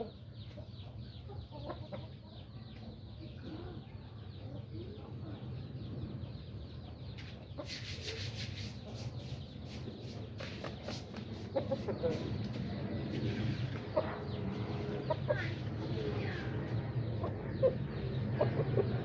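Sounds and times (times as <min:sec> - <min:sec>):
chickens clucking: 0:00.0 - 0:04.7, 0:06.8 - 0:19.0
rustling and scraping: 0:07.2 - 0:15.0.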